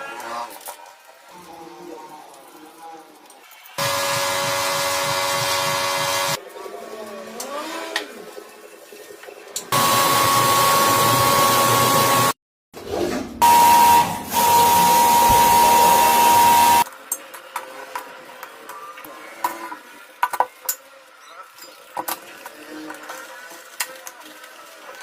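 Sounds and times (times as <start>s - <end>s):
power tool whining: 3.8s - 6.4s, 9.7s - 12.4s, 13.4s - 16.8s.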